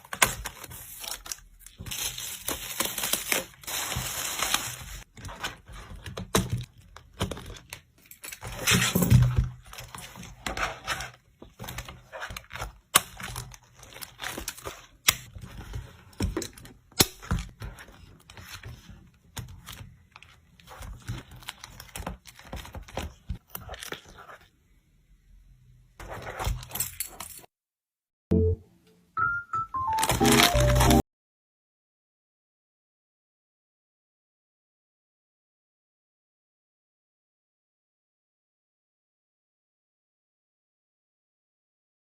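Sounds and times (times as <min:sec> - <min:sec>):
packaging tearing: 0:00.0 - 0:05.1, 0:30.0 - 0:31.0
plastic and paper crinkling: 0:00.0 - 0:24.5, 0:29.9 - 0:31.0.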